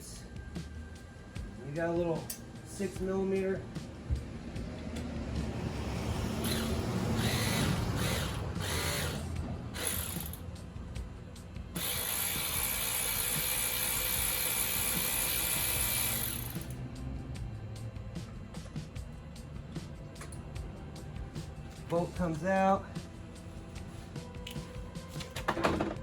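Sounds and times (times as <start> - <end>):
ratchet turning a bolt: 6.4 - 10.4, 11.8 - 16.8.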